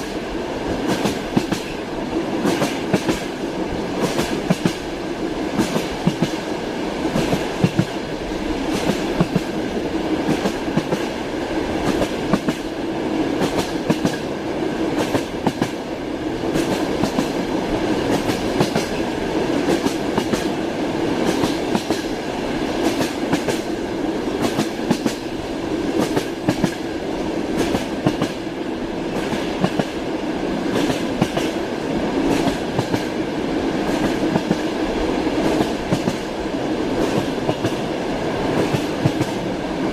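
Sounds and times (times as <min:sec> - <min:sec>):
train rolling rumble: 0:00.0 - 0:39.9
train wheels clacking over rail joints: 0:00.8 - 0:01.8, 0:02.4 - 0:03.3, 0:04.0 - 0:04.8, 0:05.6 - 0:06.4, 0:10.2 - 0:11.2, 0:11.8 - 0:12.7, 0:13.4 - 0:14.3, 0:15.0 - 0:15.8, 0:16.5 - 0:17.4, 0:18.0 - 0:19.0, 0:19.6 - 0:20.6, 0:21.2 - 0:22.1, 0:22.8 - 0:23.7, 0:24.4 - 0:25.3, 0:25.9 - 0:26.8, 0:27.6 - 0:28.4, 0:29.1 - 0:30.0, 0:30.7 - 0:31.6, 0:32.2 - 0:33.2, 0:33.8 - 0:34.7, 0:35.4 - 0:36.3, 0:37.0 - 0:37.9, 0:38.5 - 0:39.4.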